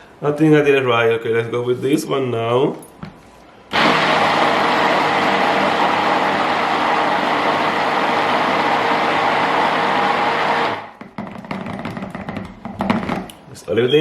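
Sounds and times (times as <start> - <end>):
stick blender whirring: 3.7 - 11.0.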